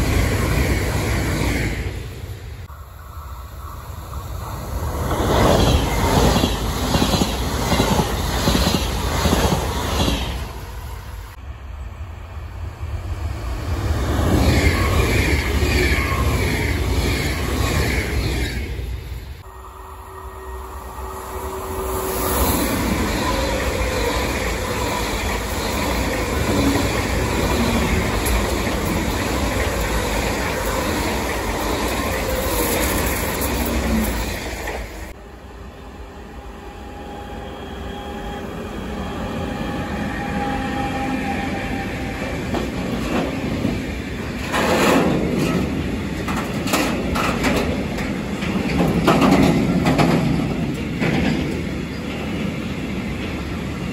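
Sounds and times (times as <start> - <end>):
freight train rolling past: 0.0 - 53.9
high-speed train rushing past: 0.0 - 53.9
wheels clattering over rail joints: 44.4 - 51.7.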